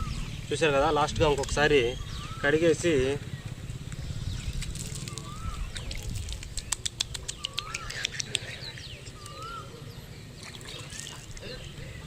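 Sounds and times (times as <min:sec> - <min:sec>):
sharp clicks: 0:06.3 - 0:09.5.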